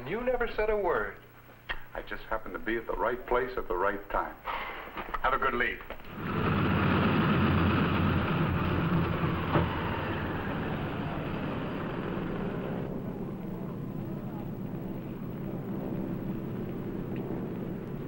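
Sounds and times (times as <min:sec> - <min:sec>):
vehicle engine rumbling: 0:06.0 - 0:18.0.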